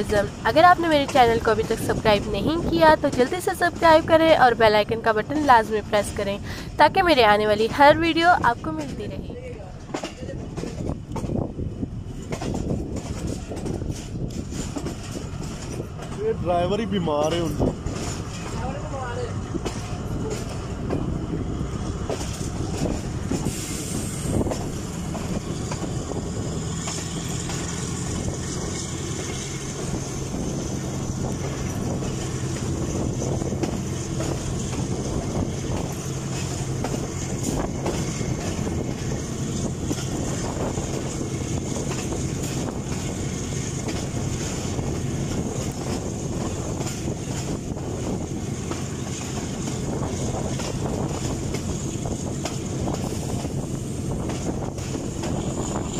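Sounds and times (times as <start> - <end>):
train rumbling on track: 0.0 - 55.9.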